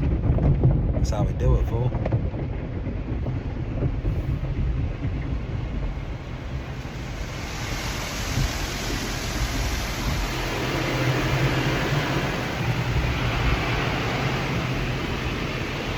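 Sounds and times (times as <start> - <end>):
steady low rumble: 0.0 - 15.9
high-pressure car wash spray: 6.0 - 15.9.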